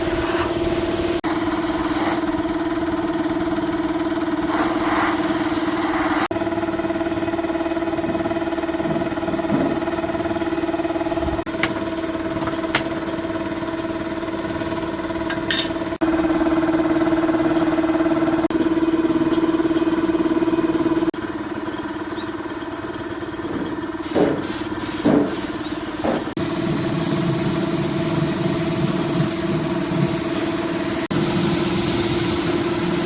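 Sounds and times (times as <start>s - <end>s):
high-pitched motor running: 23.4s - 33.0s.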